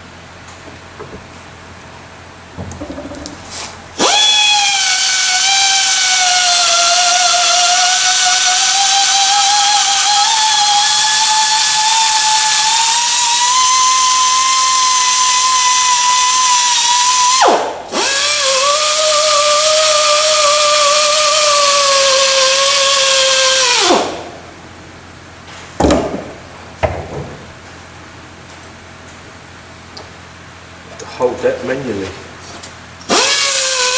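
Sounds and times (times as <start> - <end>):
power grinder whining: 4.0 - 24.1, 33.1 - 33.9.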